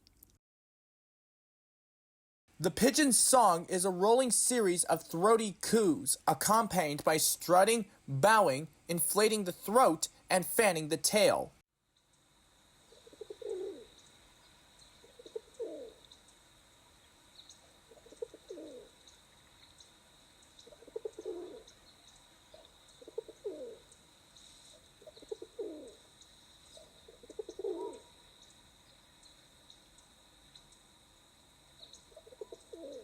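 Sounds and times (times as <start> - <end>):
pigeon cooing: 13.0 - 14.0, 15.0 - 16.0, 17.9 - 19.0, 20.6 - 21.7, 23.0 - 23.9, 25.0 - 26.0, 26.8 - 28.1, 32.1 - 33.0.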